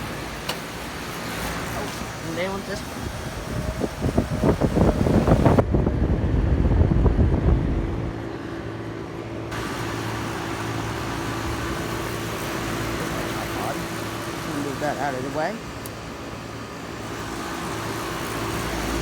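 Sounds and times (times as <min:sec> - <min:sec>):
heat pump unit running: 0:00.0 - 0:19.0.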